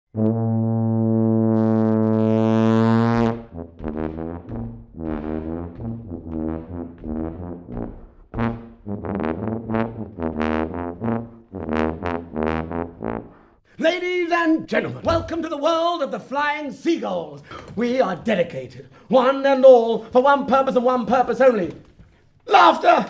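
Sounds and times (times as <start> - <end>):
brass music: 0.1 - 13.6.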